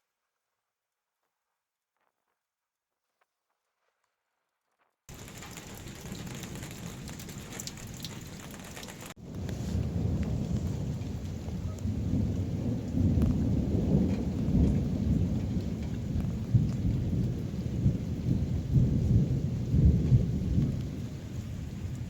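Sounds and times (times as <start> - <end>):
heavy rain: 5.1 - 22.0
rolling thunder: 5.1 - 22.0.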